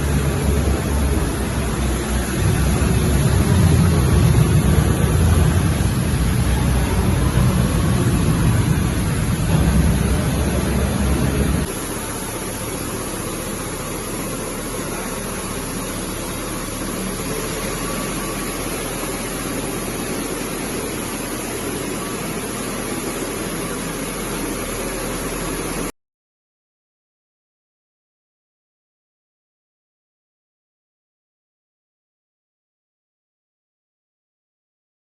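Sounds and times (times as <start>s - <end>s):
heavy low rumble: 0.0s - 20.8s
machinery hissing drone: 0.0s - 25.9s.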